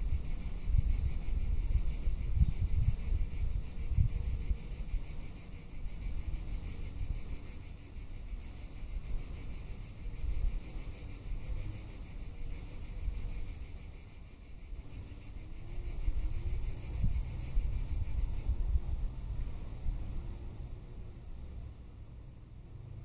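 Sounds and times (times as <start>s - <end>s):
wind on microphone: 0.0s - 7.3s, 15.8s - 20.4s
cicadas buzzing: 0.0s - 23.0s.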